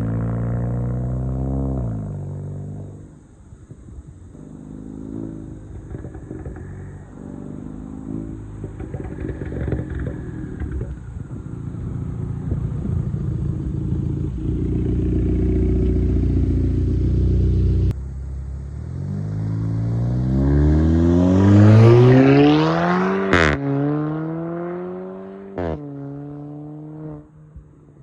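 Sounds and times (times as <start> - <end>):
loud car exhaust drone: 0.0 - 28.0
exhaust crack on gear shift: 5.8 - 7.0, 8.6 - 11.1.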